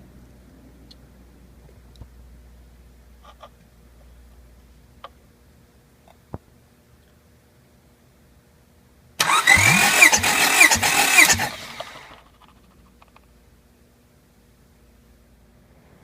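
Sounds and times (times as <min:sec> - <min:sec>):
starter motor cranking engine: 0:09.2 - 0:12.2.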